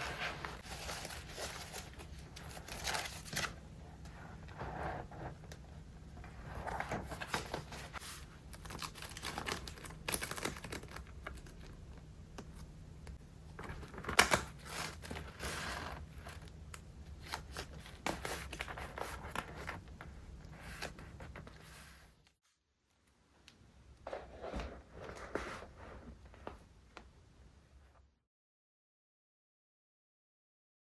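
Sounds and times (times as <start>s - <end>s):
journal pages turning and rustling: 0.0s - 5.4s, 6.2s - 11.7s, 13.5s - 16.5s, 24.0s - 26.7s.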